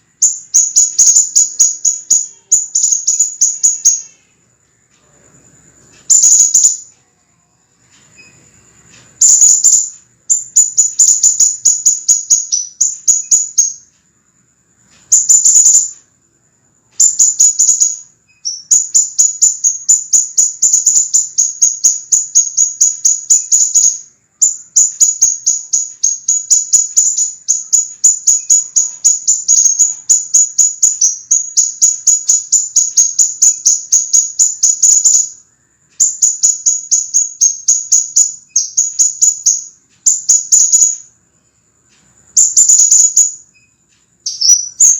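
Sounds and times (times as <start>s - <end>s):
bird chipping song: 0.0s - 4.4s, 5.8s - 7.4s, 8.2s - 13.9s, 14.8s - 16.0s, 16.8s - 41.2s, 42.3s - 44.9s.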